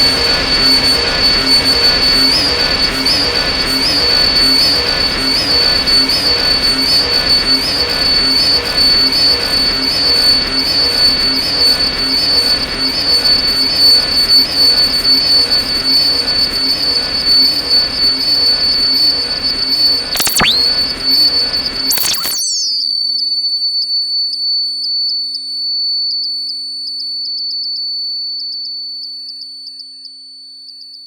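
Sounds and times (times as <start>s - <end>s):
short synth blip: 20.1s - 20.8s, 21.9s - 22.8s
steady high-pitched synth tone: 20.1s - 20.9s, 21.9s - 22.8s.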